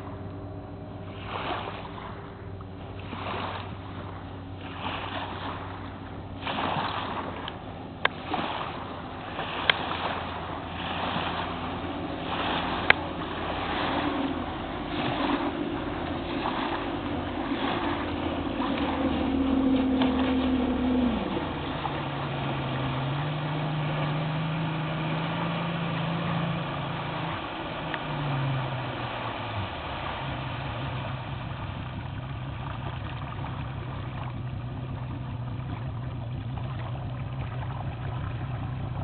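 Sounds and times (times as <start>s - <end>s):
outboard motor running: 0.0s - 39.0s
wind and water rushing: 0.0s - 39.0s.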